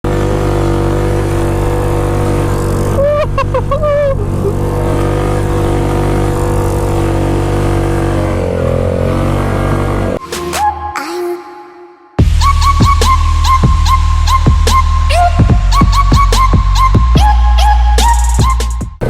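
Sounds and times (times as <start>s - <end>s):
atv engine running: 0.0s - 10.2s.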